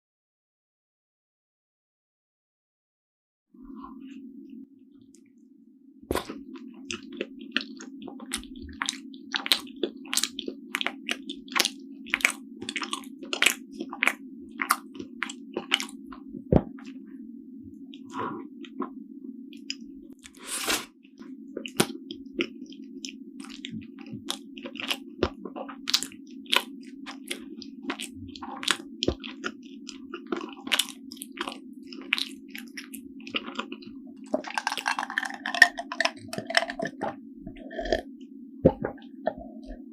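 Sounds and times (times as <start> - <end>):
constant low hum: 3.6 - 39.9
wet chewing and mouth clicks: 6.1 - 17.0, 17.8 - 38.1.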